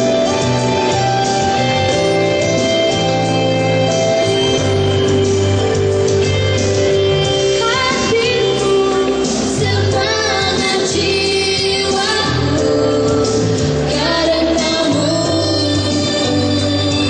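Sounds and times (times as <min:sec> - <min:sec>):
band accompaniment with bass: 0:00.0 - 0:17.0
voices singing: 0:07.7 - 0:17.0.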